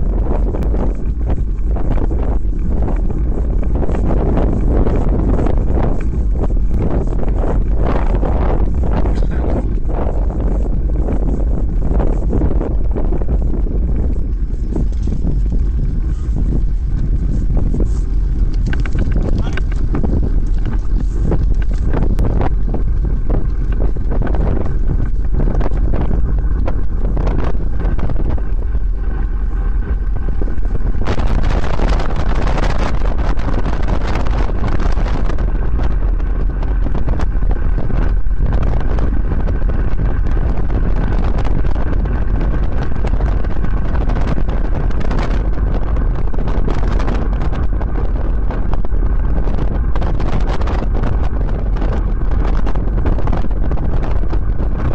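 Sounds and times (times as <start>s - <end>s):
wind buffeting microphone: 0.0s - 54.9s
scattered clicks: 18.3s - 22.4s.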